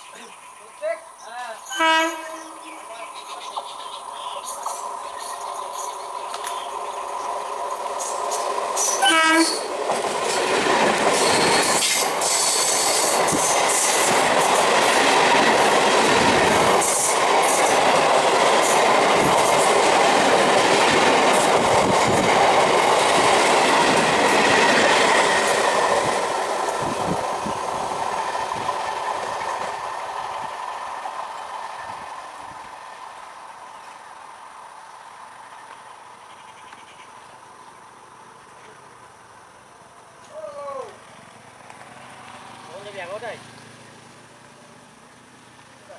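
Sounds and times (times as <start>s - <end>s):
train passing at speed: 0.0s - 40.2s, 40.9s - 45.9s
train horn blast: 1.6s - 2.6s, 9.0s - 9.7s.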